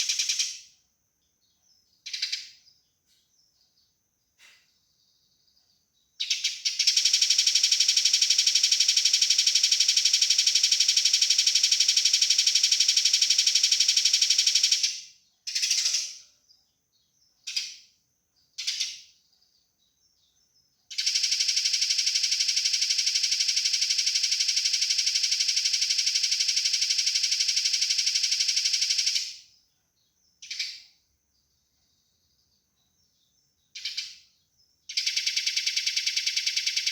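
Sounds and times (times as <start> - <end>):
sparrow rattling chatter: 33.8 - 34.2.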